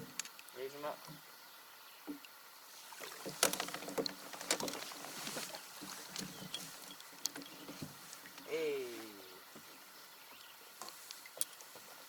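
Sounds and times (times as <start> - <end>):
water splashing beside kayak: 2.2 - 9.8.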